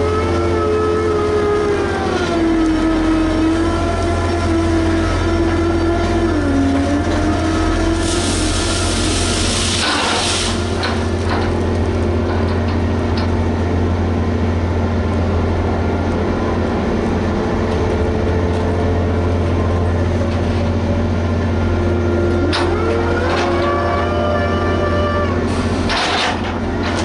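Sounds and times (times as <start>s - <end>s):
diesel engine droning: 0.0s - 27.0s
hiss: 8.0s - 11.1s.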